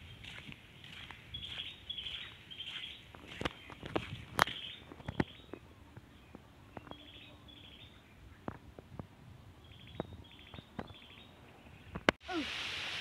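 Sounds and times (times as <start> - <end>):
rural background noise: 0.0 - 13.0
bird chirps: 0.1 - 8.5, 9.6 - 12.0.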